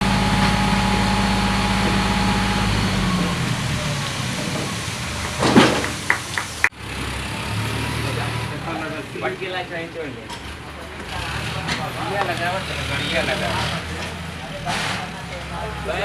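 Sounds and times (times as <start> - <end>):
tractor engine running: 0.0 - 6.8.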